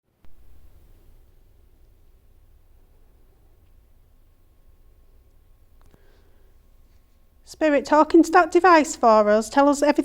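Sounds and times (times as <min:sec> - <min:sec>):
faint hiss: 0:00.1 - 0:07.6.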